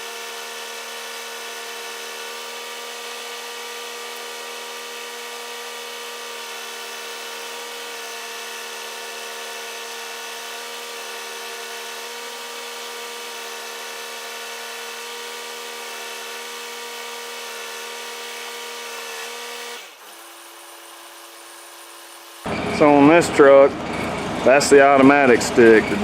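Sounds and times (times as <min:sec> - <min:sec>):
truck engine and hydraulics whine: 0:13.5 - 0:26.0.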